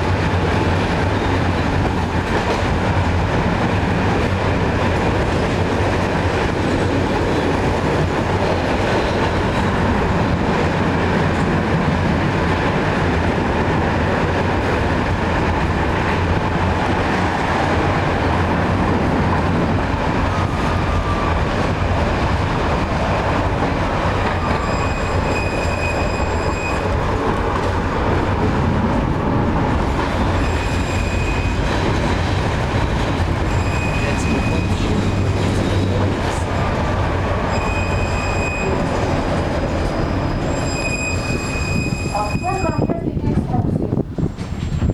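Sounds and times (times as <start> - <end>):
tram wheels rumbling on rails: 0.0 - 44.9
high whistling tone: 24.4 - 27.0, 33.5 - 34.8, 37.5 - 38.9, 39.8 - 42.9.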